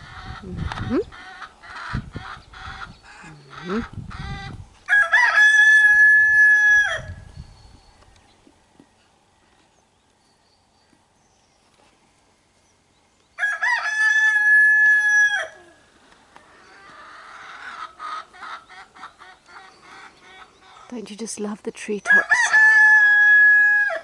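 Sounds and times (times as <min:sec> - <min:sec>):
chickens clucking and squawking: 0:00.0 - 0:07.3, 0:14.3 - 0:21.0
rooster crowing: 0:04.9 - 0:07.2, 0:13.4 - 0:15.8, 0:22.1 - 0:24.0.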